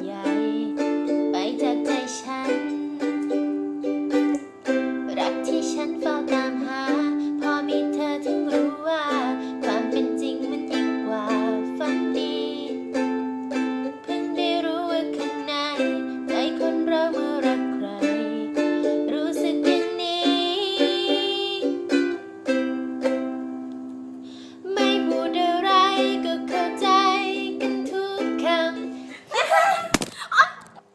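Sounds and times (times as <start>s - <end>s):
person singing: 0.0s - 23.1s, 24.5s - 29.7s
ukulele strumming chords: 0.0s - 29.2s.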